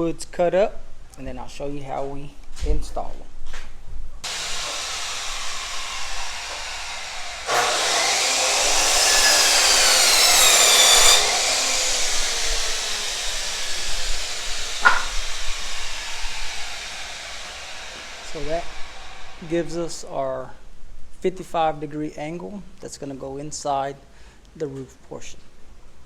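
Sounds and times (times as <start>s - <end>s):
chop saw cutting wood: 4.2s - 20.0s
steady hiss: 4.2s - 20.5s.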